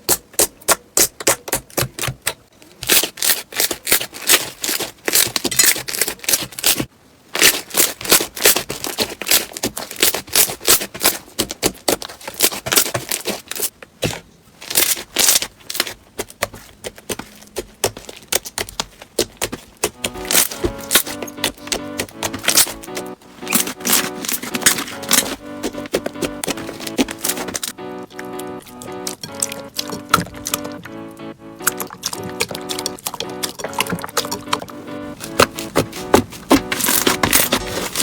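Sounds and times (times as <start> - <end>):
slime clicking and popping: 19.4 - 30.9, 31.6 - 34.7.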